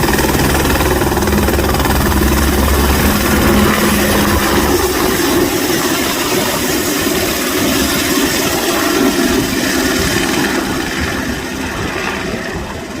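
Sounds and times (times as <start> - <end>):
helicopter engine and rotor: 0.0 - 13.0.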